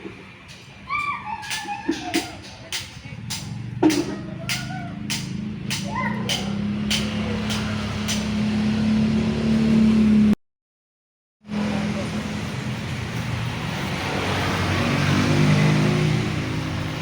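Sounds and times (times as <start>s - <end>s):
vehicle passing by: 2.6s - 10.4s, 11.5s - 17.0s
vehicle engine running: 2.9s - 10.4s.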